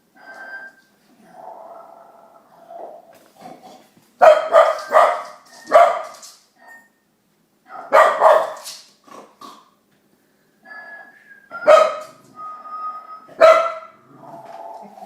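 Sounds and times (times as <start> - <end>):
dog barking: 4.2 - 6.2, 7.7 - 8.7, 11.6 - 12.1, 13.4 - 14.0.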